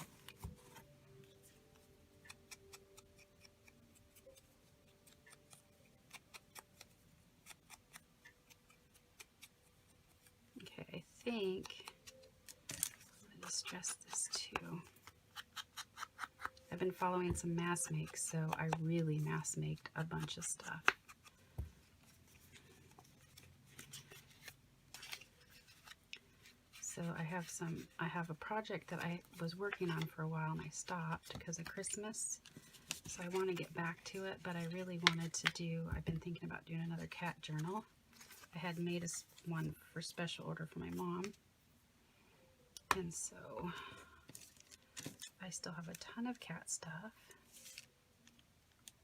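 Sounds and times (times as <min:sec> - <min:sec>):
scissors snipping paper: 0:02.2 - 0:10.4, 0:11.2 - 0:16.7
paper rustling and clicking: 0:11.5 - 0:16.7.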